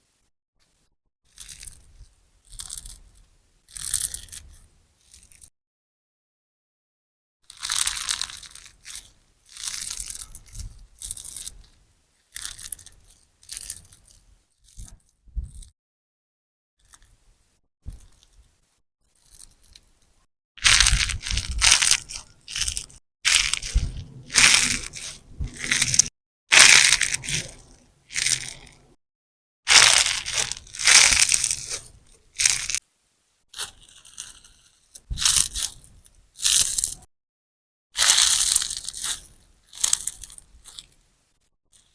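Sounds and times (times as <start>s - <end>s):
wet crackling slime squishes: 29.7s - 32.8s.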